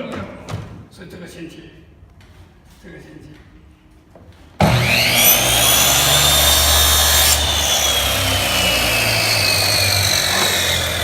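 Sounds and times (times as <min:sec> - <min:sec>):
electric saw cutting wood: 0:04.6 - 0:11.0.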